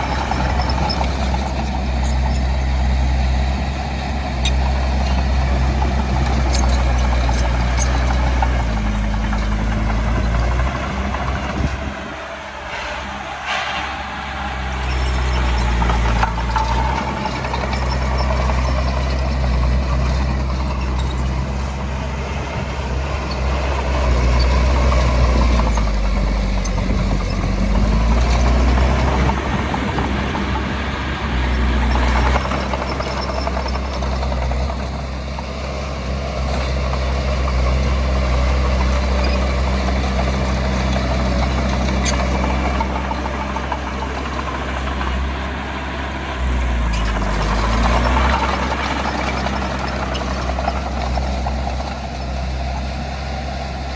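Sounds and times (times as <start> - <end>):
heavy machinery diesel engine revving: 0.0 - 53.9.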